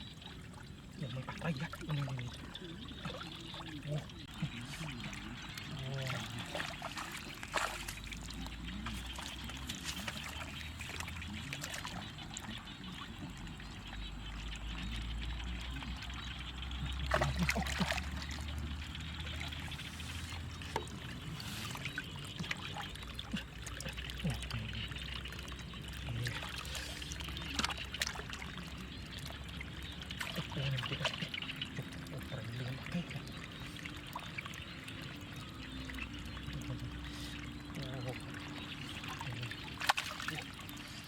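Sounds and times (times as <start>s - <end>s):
water trickling and pouring: 0.0s - 41.0s
sharp splashes or knocks: 6.5s - 8.2s.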